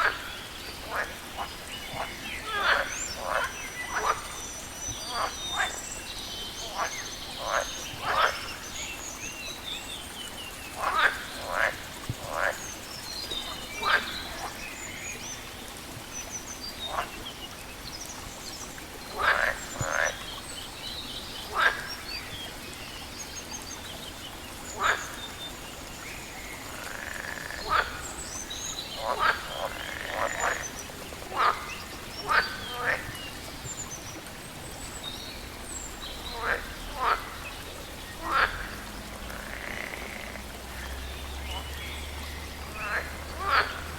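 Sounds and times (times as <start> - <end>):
frogs croaking: 0.0 - 43.9
running water hiss: 0.0 - 43.9
small birds chirping: 0.0 - 43.9.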